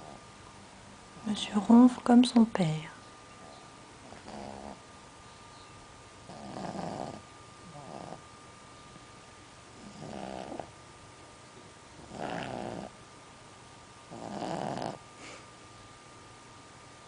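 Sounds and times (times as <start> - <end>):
dog snoring: 0.0 - 0.2, 3.4 - 4.8, 6.2 - 8.2, 9.8 - 10.8, 12.0 - 13.0, 14.1 - 15.0.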